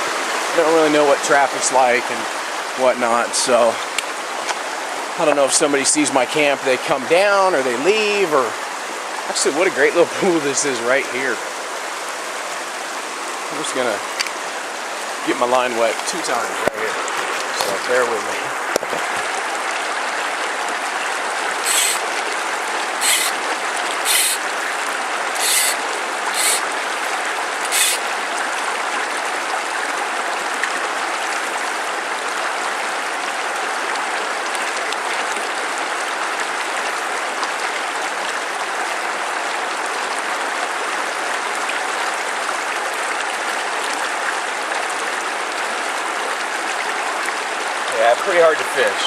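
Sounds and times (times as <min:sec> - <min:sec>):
stream rushing over rocks: 0:00.0 - 0:49.0
sharp high-pitched hisses: 0:21.7 - 0:22.0, 0:24.0 - 0:24.4, 0:25.4 - 0:25.8.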